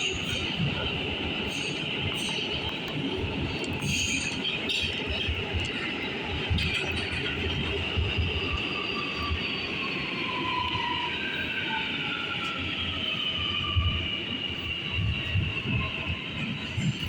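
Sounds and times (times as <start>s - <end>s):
train running rumble: 0.0s - 9.6s
subway train wheels squealing: 0.0s - 17.0s.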